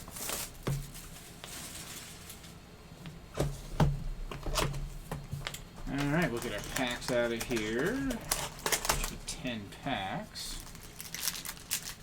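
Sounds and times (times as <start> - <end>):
plastic shrink wrap crinkling: 0.0 - 2.6, 5.9 - 9.4, 10.4 - 12.0.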